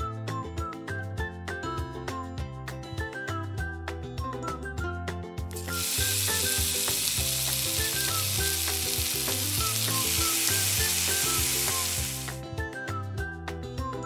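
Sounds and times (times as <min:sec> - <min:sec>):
light background music: 0:00.0 - 0:14.0
oil sizzling in a frying pan: 0:05.6 - 0:12.4.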